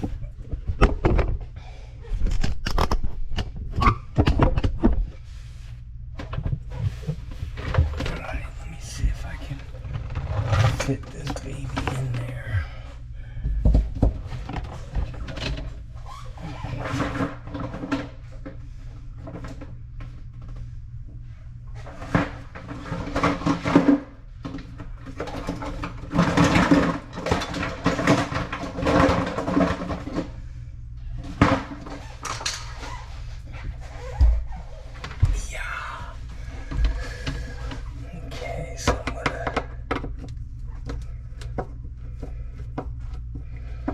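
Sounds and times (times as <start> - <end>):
low steady hum: 0.0 - 43.9
knocks clicks and rustling of parts: 2.1 - 5.2, 22.0 - 30.3, 31.2 - 35.4.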